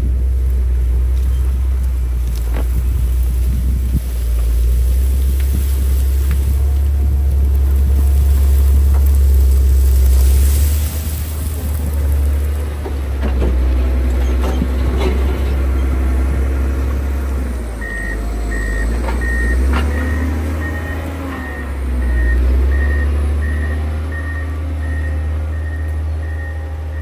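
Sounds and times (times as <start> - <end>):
diesel engine running under load: 0.0 - 27.0
knocks and clatter: 12.6 - 15.9
reversing alarm beeping: 17.8 - 27.0.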